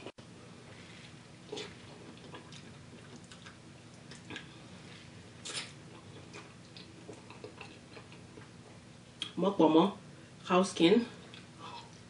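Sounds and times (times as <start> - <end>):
wet chewing and mouth smacks: 1.5 - 4.6, 5.4 - 9.4.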